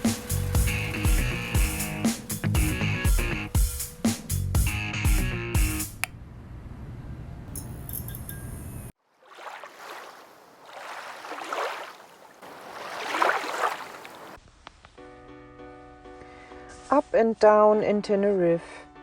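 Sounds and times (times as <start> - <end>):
guitar music: 0.0 - 6.0
sea waves on shore: 9.0 - 14.4.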